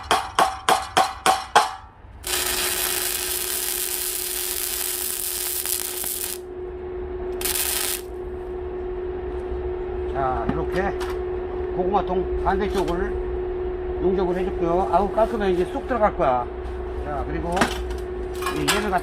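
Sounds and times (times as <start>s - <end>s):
steady hum: 0.0s - 19.0s
arc welding crackling hiss: 2.2s - 6.4s, 7.4s - 8.1s.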